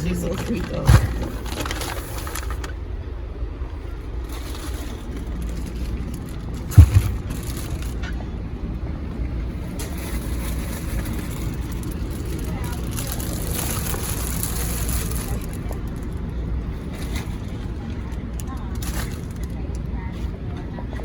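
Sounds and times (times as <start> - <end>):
car road and engine rumble: 0.0 - 20.8
sharp thump: 6.7 - 8.0.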